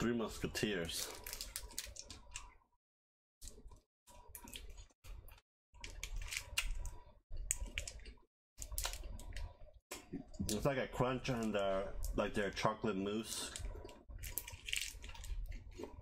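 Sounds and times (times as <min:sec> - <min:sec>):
plastic wrapper rustling: 0:00.9 - 0:02.2
chewing chocolate bar crunching: 0:13.5 - 0:16.0.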